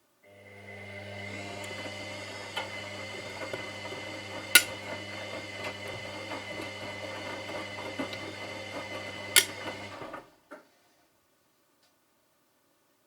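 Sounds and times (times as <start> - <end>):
washing machine humming: 0.3 - 10.4.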